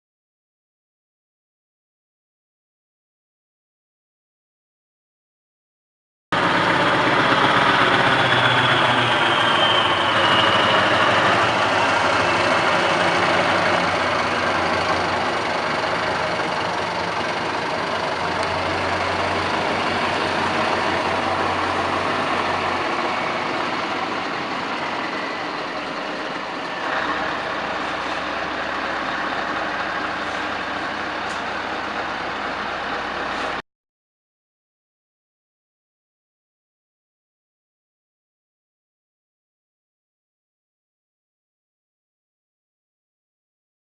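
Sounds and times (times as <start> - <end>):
truck engine running: 6.4 - 33.6.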